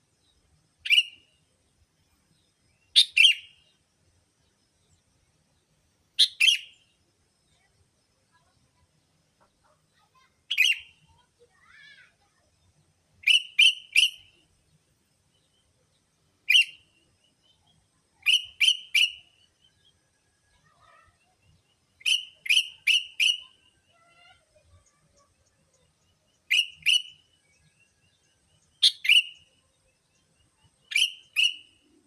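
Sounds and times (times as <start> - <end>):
bulbul calling: 6.2 - 6.8, 13.2 - 14.3, 16.5 - 16.8, 18.2 - 19.3, 22.0 - 23.6, 26.5 - 27.2, 28.8 - 29.5, 30.8 - 31.9.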